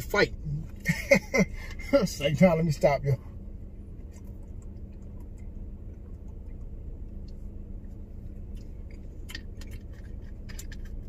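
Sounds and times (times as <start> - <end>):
steady low hum: 0.0 - 11.0
man chewing food: 3.6 - 11.0.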